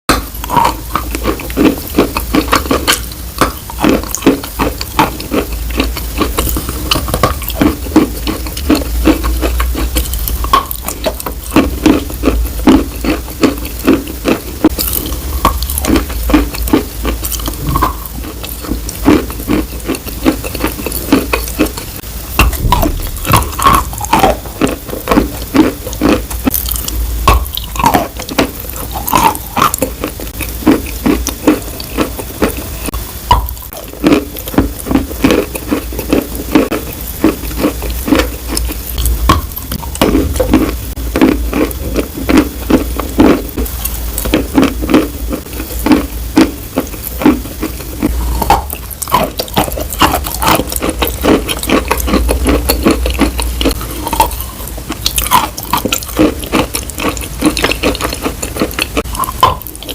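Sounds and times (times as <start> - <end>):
steady low hum: 0.1 - 59.9
wet clicking and crackling: 45.4 - 59.9.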